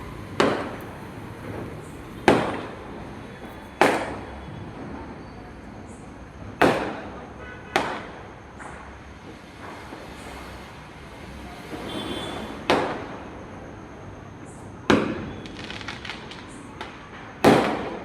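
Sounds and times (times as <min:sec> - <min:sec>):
firecrackers bursting: 0:00.0 - 0:05.1, 0:06.6 - 0:11.0, 0:11.6 - 0:13.6, 0:14.8 - 0:18.0.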